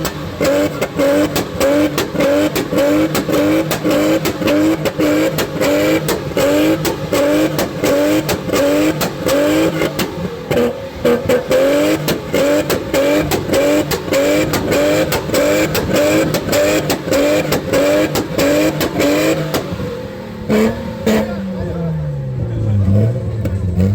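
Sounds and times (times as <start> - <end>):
exhaust pops and cracks: 0.0 - 10.6
car engine revving: 0.0 - 23.9.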